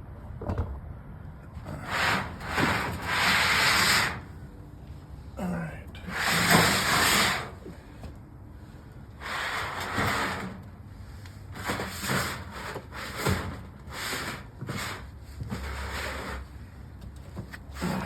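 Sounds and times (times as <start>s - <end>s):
objects scraping and dragging: 1.5s - 4.4s, 5.9s - 8.1s, 9.2s - 18.0s.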